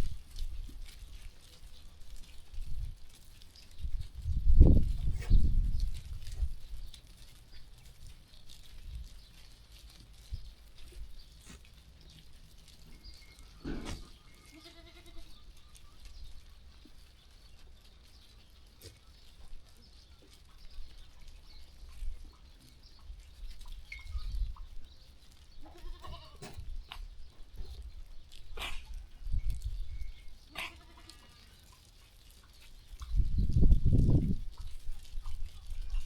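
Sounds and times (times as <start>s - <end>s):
sheep bleating: 14.3s - 15.3s, 25.7s - 26.5s, 30.5s - 31.6s.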